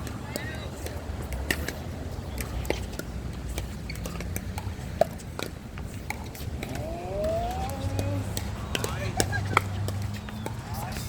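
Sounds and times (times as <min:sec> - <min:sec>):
paddles striking ball: 0:06.1 - 0:10.6.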